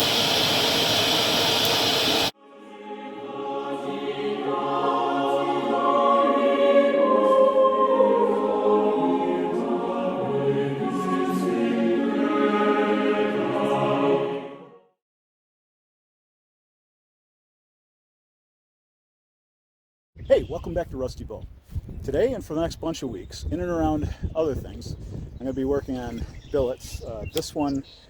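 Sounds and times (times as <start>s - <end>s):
choir singing unaccompanied: 2.3s - 14.8s.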